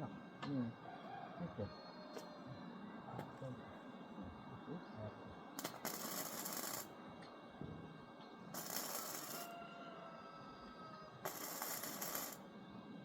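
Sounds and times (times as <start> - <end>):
welding arc crackling and hissing: 5.6 - 6.9, 8.5 - 9.5, 11.2 - 12.4.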